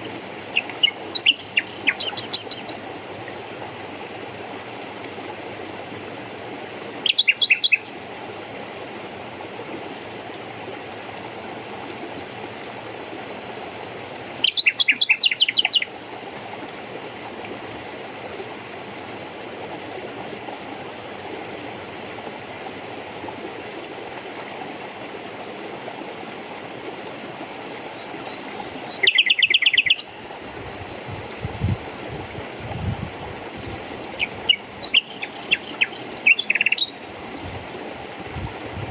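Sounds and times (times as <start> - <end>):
flowing water: 0.0 - 38.9
songbird singing trills: 0.5 - 2.8, 6.3 - 7.9, 12.9 - 15.9, 27.6 - 30.2, 34.0 - 37.0.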